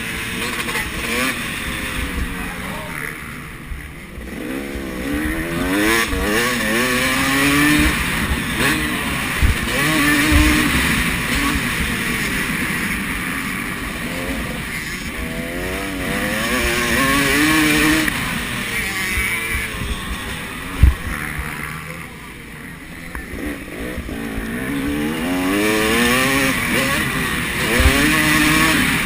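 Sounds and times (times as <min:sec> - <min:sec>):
motocross bikes revving: 0:00.0 - 0:29.0
short dull thumps: 0:20.7 - 0:21.5.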